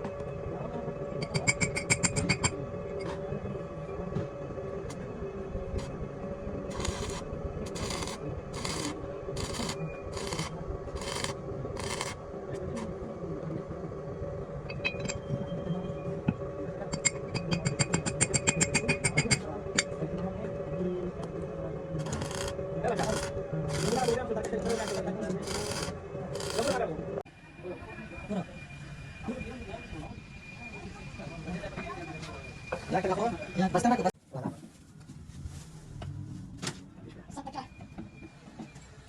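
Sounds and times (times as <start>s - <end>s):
steady machine hum: 0.0s - 34.1s
rapid metallic ticking: 6.7s - 12.8s, 22.0s - 26.8s
hand tool scraping metal: 6.7s - 12.9s, 22.0s - 26.8s.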